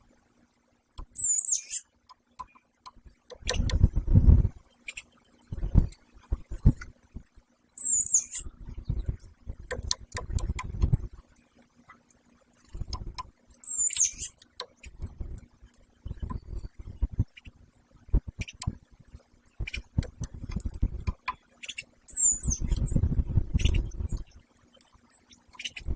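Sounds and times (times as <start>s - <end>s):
woodpeckers bumping and scratching: 1.0s - 7.0s, 7.8s - 18.8s, 19.6s - 25.9s
woodpecker squeaky calls: 1.1s - 1.8s, 7.8s - 8.5s, 13.6s - 14.4s, 21.6s - 23.0s.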